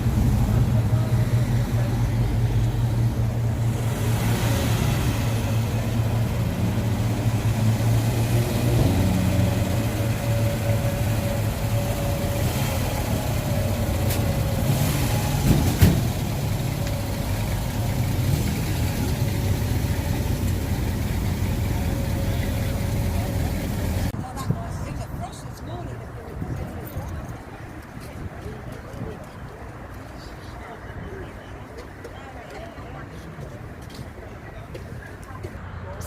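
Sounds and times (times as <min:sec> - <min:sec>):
engine idling: 0:00.0 - 0:24.2.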